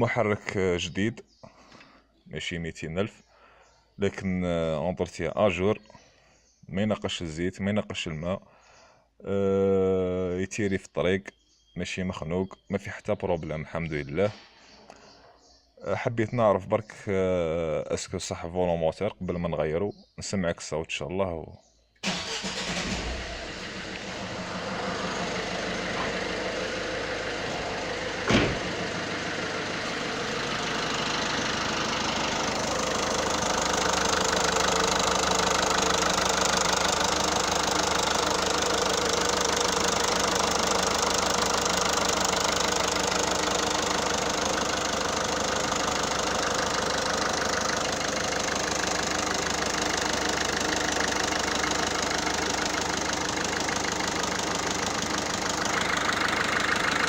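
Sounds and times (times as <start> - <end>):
diesel engine idling: 22.0 - 57.0.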